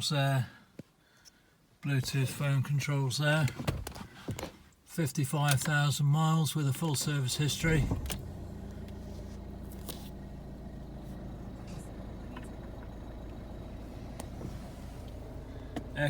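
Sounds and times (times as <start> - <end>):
diesel engine idling: 6.6 - 16.0.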